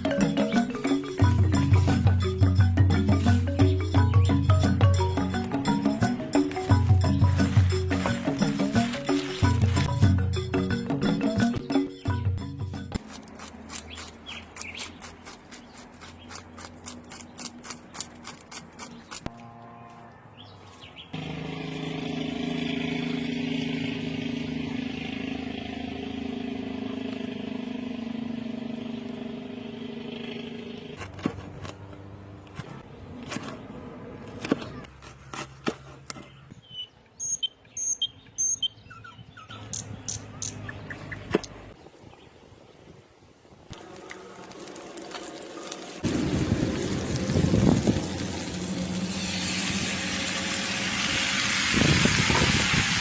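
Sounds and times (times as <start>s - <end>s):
vehicle engine running: 0.1s - 13.1s, 21.2s - 32.9s, 43.8s - 53.0s
birds chirping: 13.8s - 16.4s, 18.8s - 21.2s, 36.1s - 42.6s
hot oil crackling and popping: 43.8s - 53.0s.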